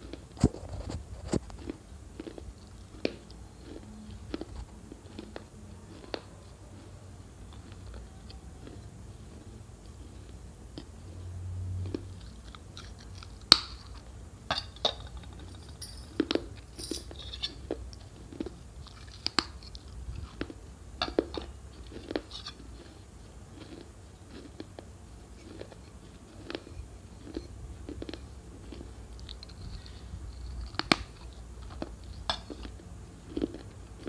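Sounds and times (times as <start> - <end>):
person chewing crisp flatbread: 0.0 - 34.0.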